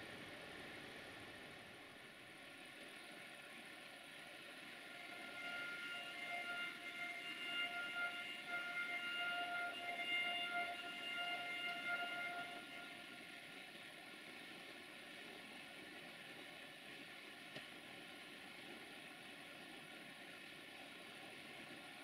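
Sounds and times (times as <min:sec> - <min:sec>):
distant train high tone: 0:04.6 - 0:14.0.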